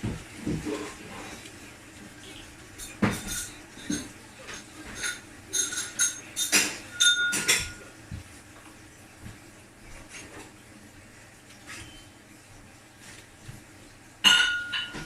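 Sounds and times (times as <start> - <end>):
crockery and cutlery clinking: 2.8 - 7.9, 14.2 - 15.0.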